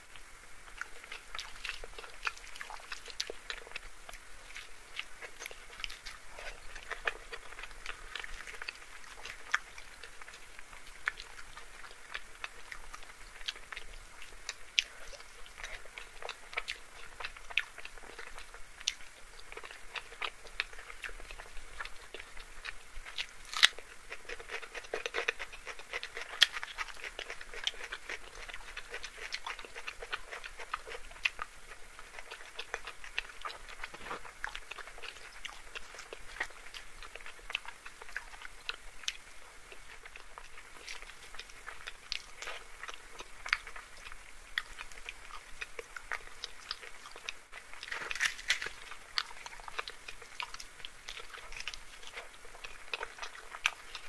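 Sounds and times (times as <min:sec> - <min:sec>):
close chewing and wet mouth sounds: 0:00.0 - 0:54.0.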